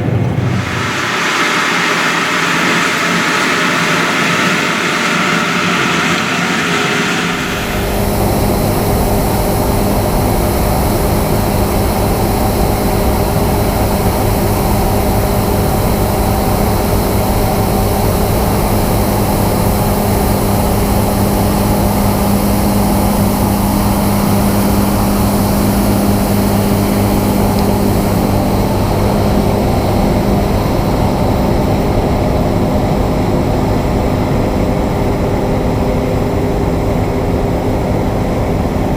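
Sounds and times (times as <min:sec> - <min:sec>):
higher hissy sound: 0:00.0 - 0:08.9
diesel engine drone: 0:00.0 - 0:19.0.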